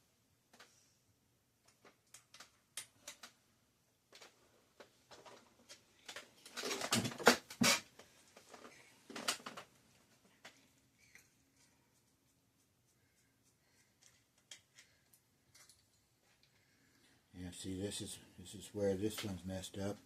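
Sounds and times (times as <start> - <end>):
metal parts and tools rattling: 6.1 - 7.8, 14.0 - 16.1.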